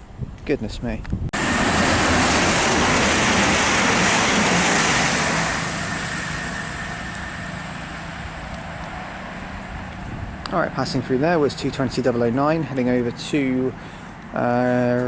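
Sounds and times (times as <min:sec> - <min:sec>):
train passing at speed: 0:01.4 - 0:14.8.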